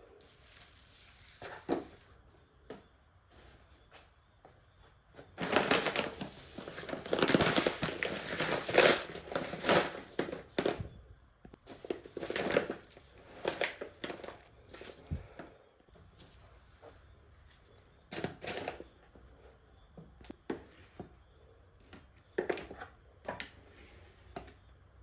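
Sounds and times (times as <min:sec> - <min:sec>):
packaging crinkling and rustling: 0:05.4 - 0:10.9, 0:11.6 - 0:15.2.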